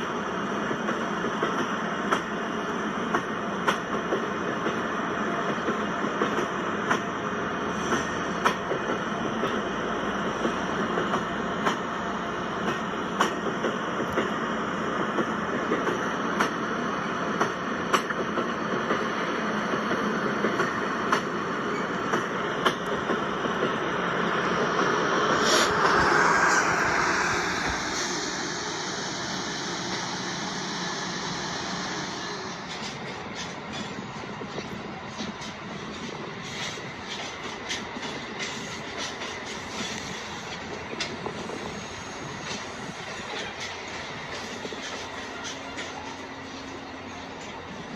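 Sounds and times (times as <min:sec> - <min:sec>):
train wheels clicking over rail joints: 0:00.0 - 0:47.9
high thin whine falling in pitch: 0:25.0 - 0:31.7.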